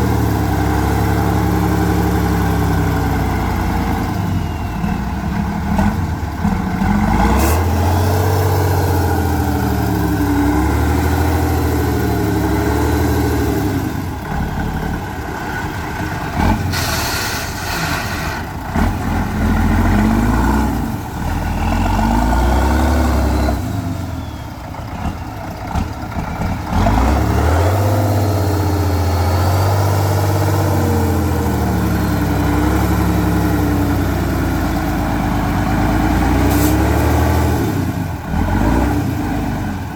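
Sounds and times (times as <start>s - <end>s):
truck diesel engine revving: 0.0s - 39.9s
short hiss: 16.7s - 18.5s, 36.5s - 37.0s.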